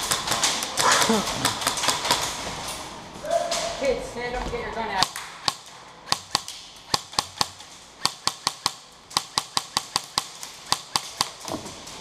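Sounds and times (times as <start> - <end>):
airsoft gun shots: 5.0 - 11.4.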